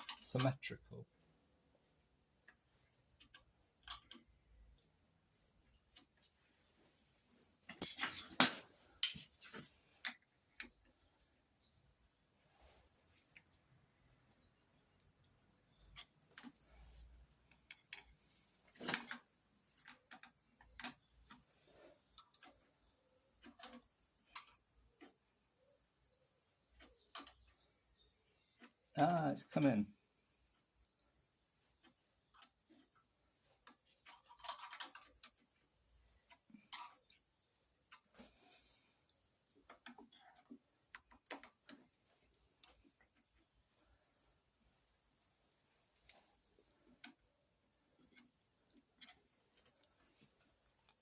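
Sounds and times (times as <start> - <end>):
metal tools clinking on engine parts: 0.0 - 0.7, 7.6 - 11.8, 17.6 - 21.1, 34.0 - 35.4
faint bird chirps: 0.0 - 7.7, 8.7 - 51.0.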